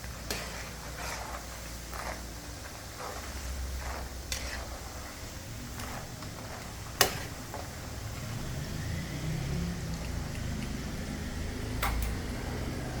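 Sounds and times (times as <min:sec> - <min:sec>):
low engine-like rumble: 0:03.2 - 0:13.0.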